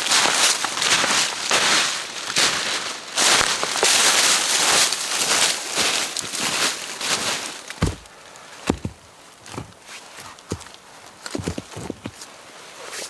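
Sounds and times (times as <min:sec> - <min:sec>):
rustling in dry leaves: 0:00.0 - 0:13.0
thumping footsteps: 0:07.1 - 0:12.2.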